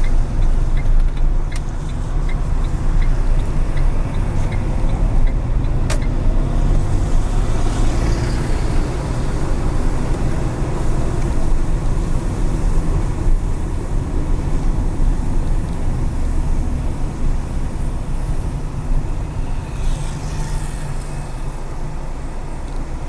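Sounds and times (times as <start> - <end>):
road and engine rumble: 0.0 - 23.0
vehicle passing: 2.0 - 12.8, 13.4 - 22.0
sharp click: 5.8 - 6.2.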